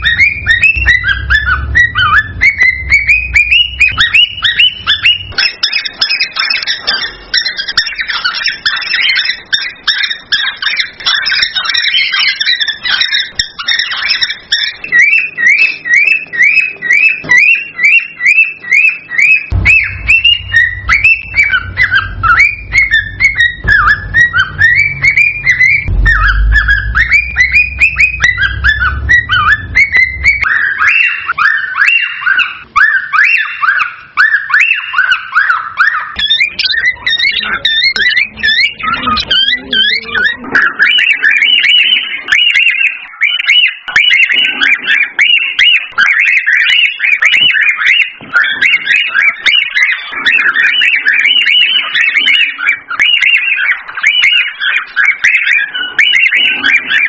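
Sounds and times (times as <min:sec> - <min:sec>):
low rumble: 0:00.0 - 0:05.4, 0:19.5 - 0:31.3
cockatiels whistling: 0:00.0 - 0:57.0.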